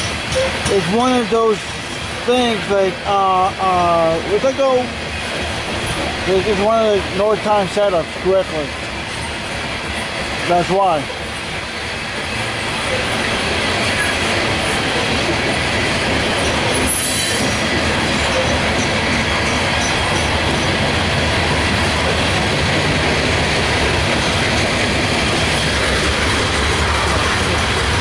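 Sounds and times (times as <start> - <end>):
train wheels rumbling on rails: 0.0 - 28.0
high wheel squeal: 16.4 - 20.7.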